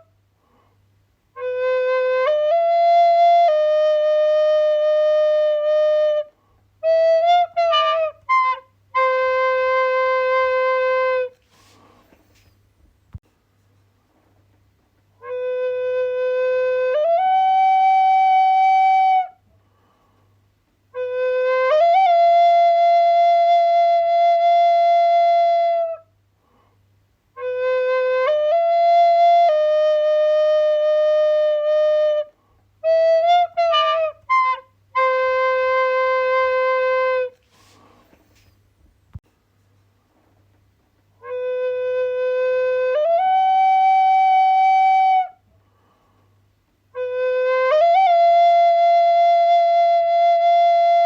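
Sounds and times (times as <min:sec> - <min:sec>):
flute-like wind instrument: 0:01.3 - 0:12.5, 0:15.2 - 0:19.4, 0:20.9 - 0:26.2, 0:27.4 - 0:38.5, 0:41.2 - 0:45.5, 0:46.9 - 0:51.0.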